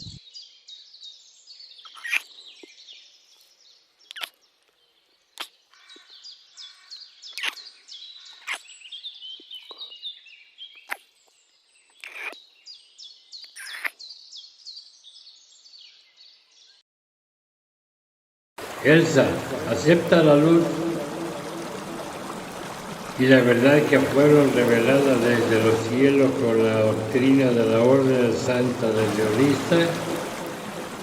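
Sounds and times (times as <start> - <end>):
small birds chirping: 0.0 - 16.8, 18.6 - 31.0
sharp bird calls or clicks: 1.8 - 2.8, 4.0 - 10.0, 10.7 - 12.5, 13.4 - 14.2.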